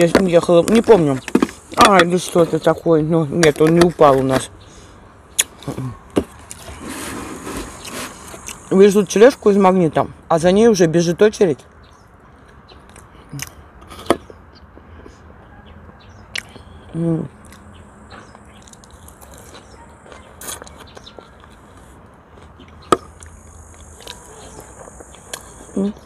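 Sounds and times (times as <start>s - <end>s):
high insect drone: 0.4s - 2.6s, 6.6s - 10.6s, 22.8s - 26.0s
person chewing food: 5.4s - 8.7s, 16.3s - 26.0s
person humming mm: 25.4s - 26.0s.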